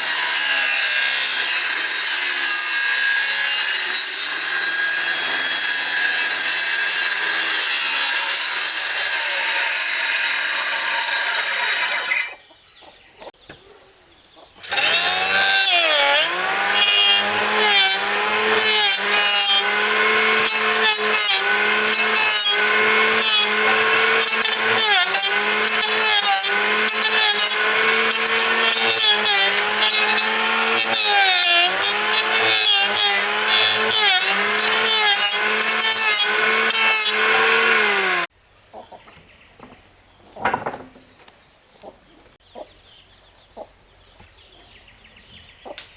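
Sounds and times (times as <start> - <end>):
power tool cutting wood: 0.0 - 12.4, 14.6 - 38.3.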